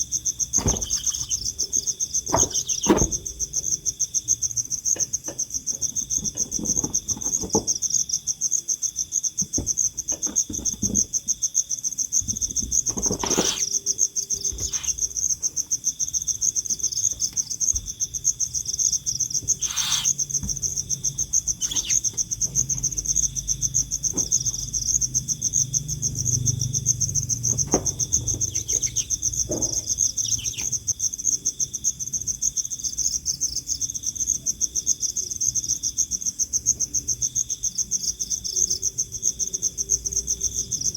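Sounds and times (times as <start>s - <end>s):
insects chirping: 0.0s - 40.9s
sharp knocks: 27.5s - 30.6s.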